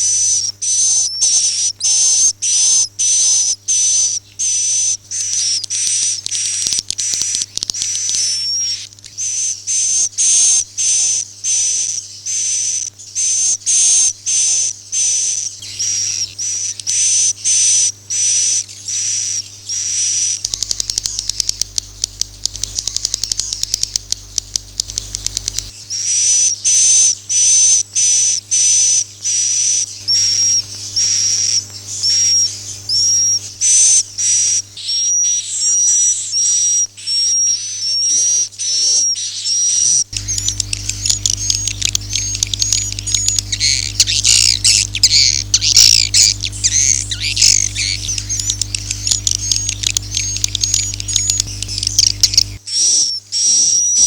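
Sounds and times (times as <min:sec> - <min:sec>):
rapid clicks: 0:20.2 - 0:25.7, 0:40.2 - 0:52.6
high bird chirping calls: 0:28.9 - 0:53.5.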